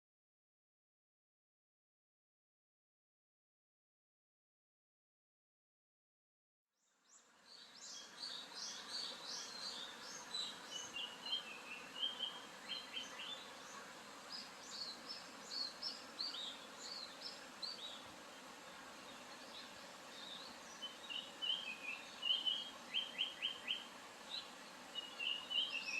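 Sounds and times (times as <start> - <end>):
background hiss: 6.9 - 25.9
bird chirping: 7.1 - 18.0, 19.0 - 25.9.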